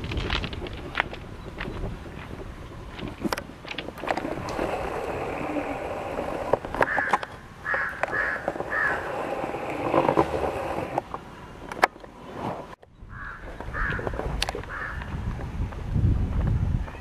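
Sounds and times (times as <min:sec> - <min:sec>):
bird calls: 0:06.7 - 0:09.9.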